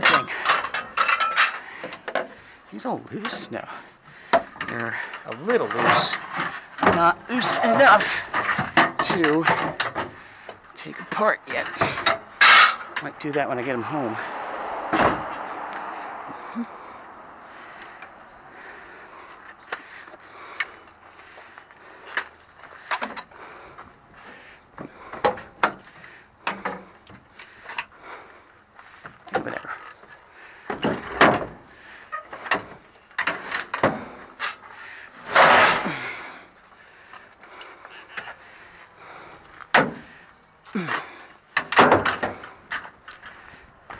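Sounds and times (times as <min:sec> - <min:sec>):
metal scraps knocking and clinking: 0:00.0 - 0:02.4, 0:04.3 - 0:10.2, 0:11.1 - 0:13.4
scrap metal knocking and clanking: 0:00.0 - 0:02.5, 0:03.1 - 0:21.4, 0:29.1 - 0:36.3, 0:40.8 - 0:43.4.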